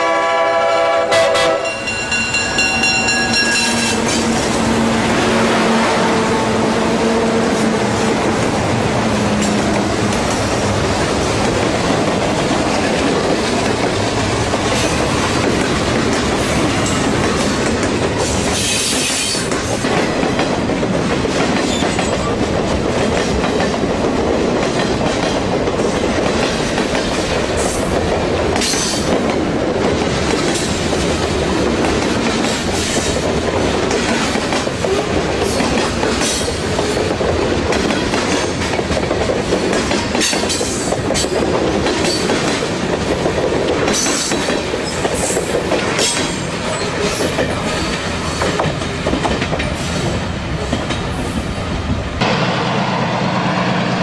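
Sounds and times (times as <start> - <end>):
freight train wheels rumbling on rails: 0.0 - 54.0.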